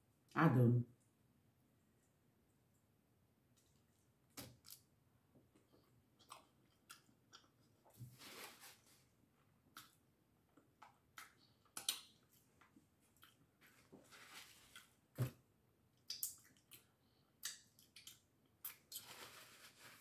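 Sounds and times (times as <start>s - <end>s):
person chewing: 5.5s - 7.8s, 9.7s - 13.5s, 16.0s - 19.1s
mouth clicks and lip smacks: 10.8s - 12.2s, 16.0s - 19.1s.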